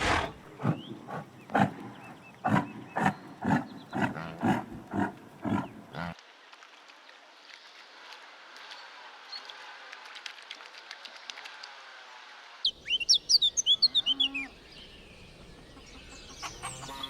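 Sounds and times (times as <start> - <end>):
lion grunting: 0.0 - 6.2.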